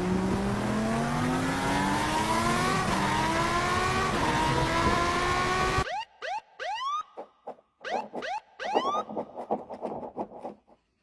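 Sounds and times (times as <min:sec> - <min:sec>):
car engine accelerating hard: 0:00.0 - 0:05.8.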